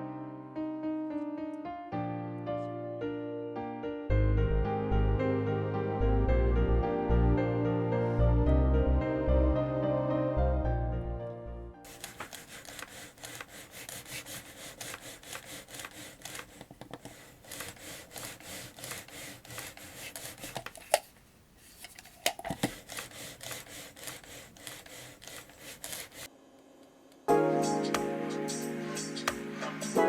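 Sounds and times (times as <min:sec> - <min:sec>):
mechanical keyboard typing: 0:11.9 - 0:21.0, 0:22.3 - 0:26.3.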